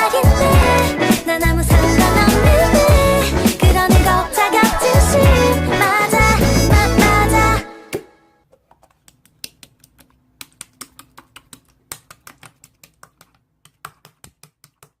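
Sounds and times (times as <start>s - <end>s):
music: 0.0s - 8.4s.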